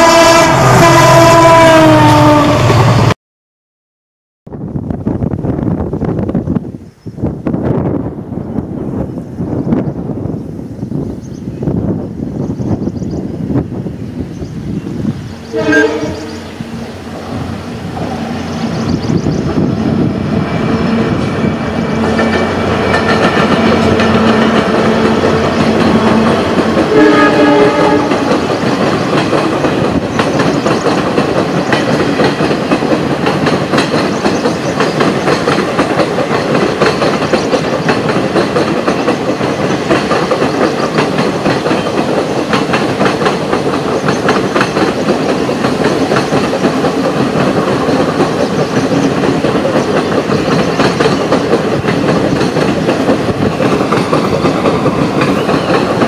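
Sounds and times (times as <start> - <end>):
train horn blast: 0.0 - 3.1, 15.4 - 18.9, 20.4 - 28.5
diesel locomotive engine drone: 0.0 - 3.2, 4.5 - 56.0
train wheels clickety-clack: 17.9 - 56.0.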